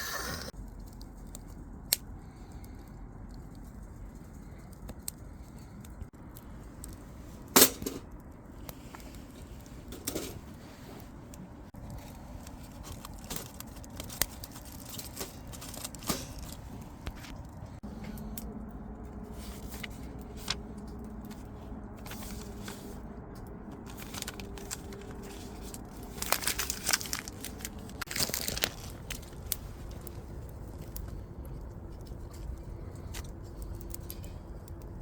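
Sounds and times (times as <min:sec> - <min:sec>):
wood fire crackling: 0:00.1 - 0:35.0.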